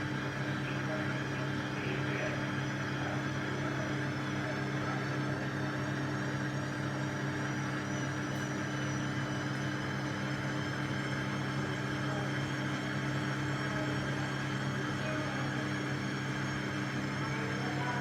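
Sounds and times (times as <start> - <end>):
washing machine motor humming: 0.0 - 18.0.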